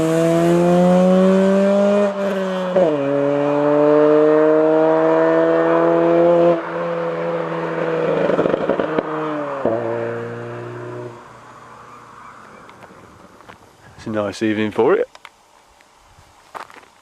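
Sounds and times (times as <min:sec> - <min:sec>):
car engine revving under load: 0:00.0 - 0:13.4
exhaust crackling and popping: 0:08.0 - 0:17.0.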